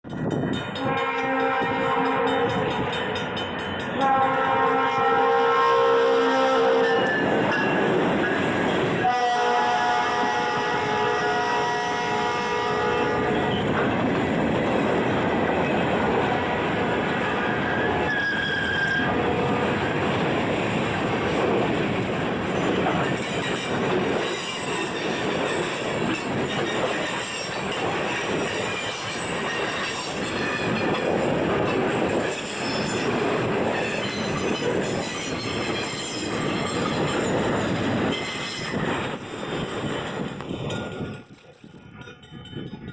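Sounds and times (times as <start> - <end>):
steel wheels clattering on rails: 0.0 - 5.4, 13.0 - 42.9
wheel squeal: 17.6 - 19.2.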